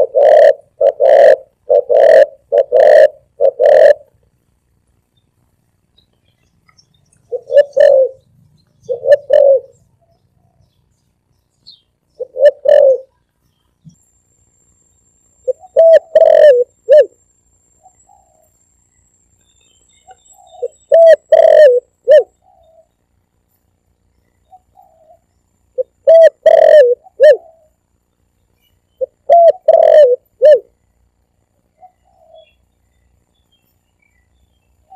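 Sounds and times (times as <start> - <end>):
dove cooing: 0.0 - 4.2, 7.2 - 10.6, 12.2 - 13.2, 15.4 - 17.2, 17.8 - 18.5, 20.0 - 22.9, 24.4 - 27.8, 29.0 - 30.8, 31.7 - 32.6.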